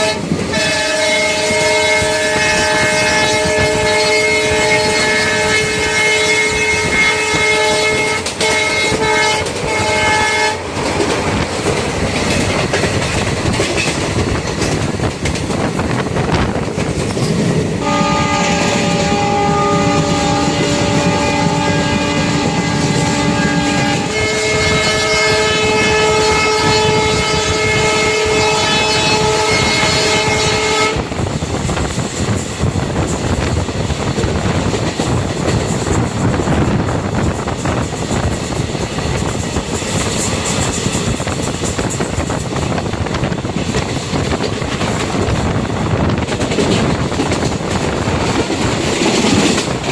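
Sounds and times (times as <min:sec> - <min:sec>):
train horn blasts: 0:00.0 - 0:10.7, 0:17.8 - 0:31.2
train rumbling on track: 0:00.0 - 0:49.9.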